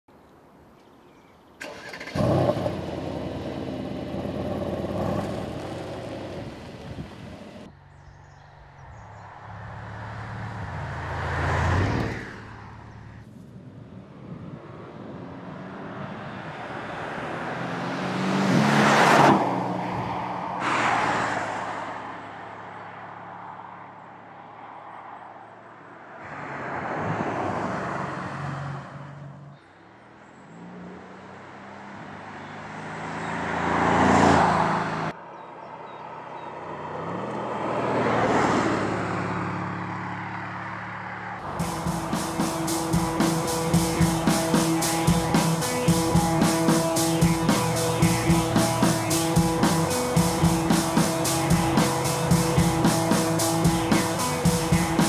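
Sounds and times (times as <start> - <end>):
car engine starting and idling: 1.6 - 7.7, 41.4 - 55.0
car driving past: 9.1 - 13.2, 15.4 - 22.2.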